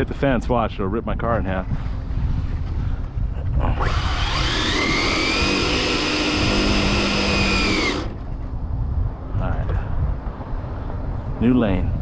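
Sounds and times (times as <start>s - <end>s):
electric motor whining: 3.8s - 8.2s.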